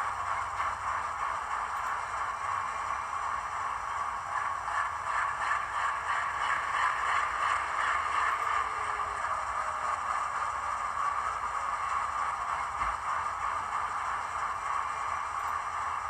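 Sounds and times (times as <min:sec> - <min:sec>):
diesel engine idling through small speaker: 0:00.0 - 0:16.0.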